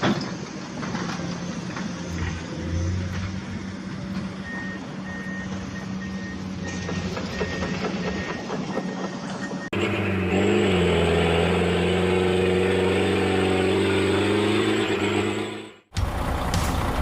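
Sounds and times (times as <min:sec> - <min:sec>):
engine hum: 0:00.0 - 0:17.0
truck reversing alarm beeping: 0:04.2 - 0:10.3.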